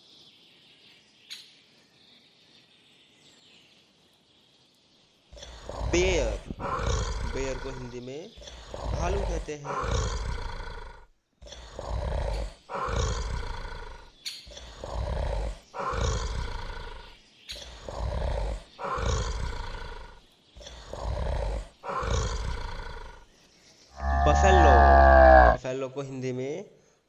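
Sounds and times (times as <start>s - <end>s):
bear roaring: 5.4s - 23.3s, 23.9s - 25.6s.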